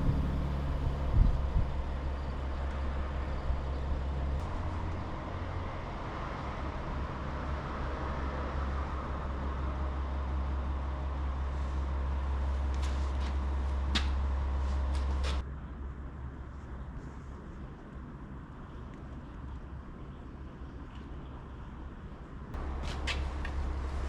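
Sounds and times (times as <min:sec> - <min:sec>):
vehicle engine rumbling: 0:00.0 - 0:17.4, 0:22.6 - 0:24.0.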